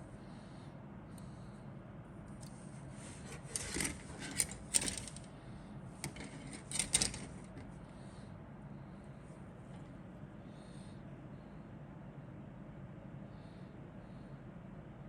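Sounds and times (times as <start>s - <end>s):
steady low hum: 0.0s - 15.0s
plastic parts clicking and rustling: 3.3s - 5.3s, 6.0s - 7.7s.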